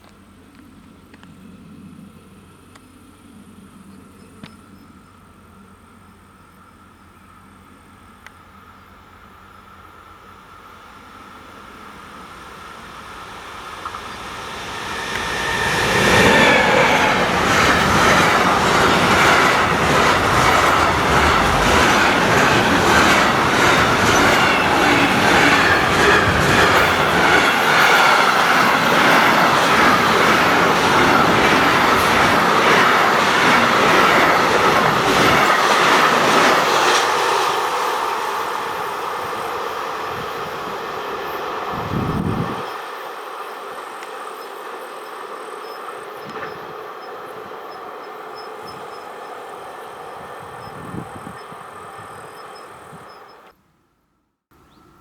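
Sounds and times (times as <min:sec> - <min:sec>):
train passing at speed: 0:05.2 - 0:53.6
wheels clattering on rails: 0:11.7 - 0:42.8.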